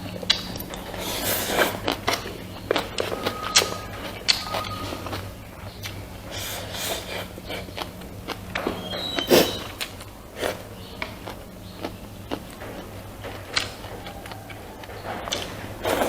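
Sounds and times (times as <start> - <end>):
person chewing and smacking: 0.0 - 16.0
steady low hum: 0.0 - 16.0.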